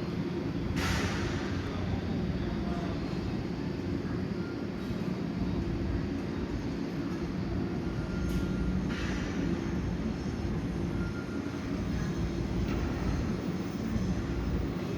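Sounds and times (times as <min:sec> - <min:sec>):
electric train rumbling: 0:05.3 - 0:14.9.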